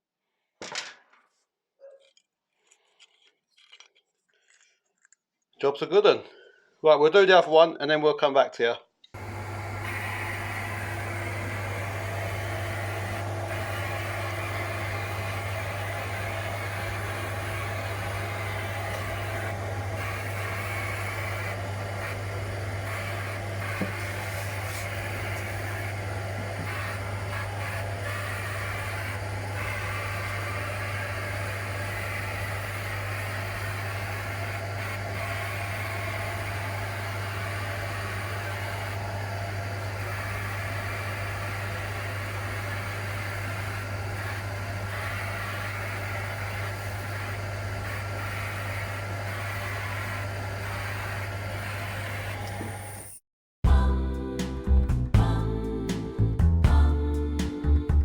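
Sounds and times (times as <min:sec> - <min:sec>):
machine humming and hissing: 0:09.2 - 0:53.2.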